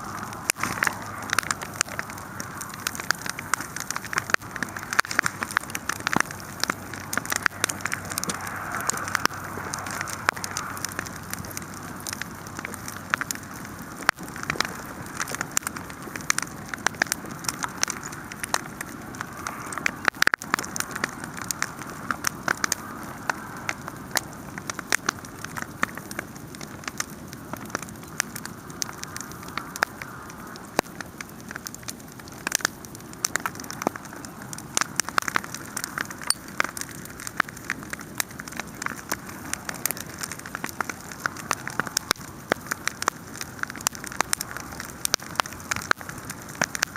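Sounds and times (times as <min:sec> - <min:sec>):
hiss of flames: 0:00.0 - 0:25.2
wood fire crackling and popping: 0:00.0 - 0:46.9.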